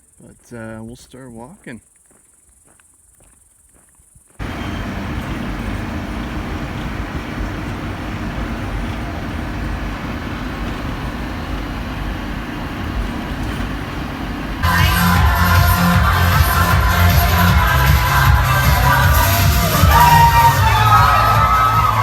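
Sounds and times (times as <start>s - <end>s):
faint crickets: 0.0s - 14.6s
road vehicle engine and tyres: 4.4s - 22.0s.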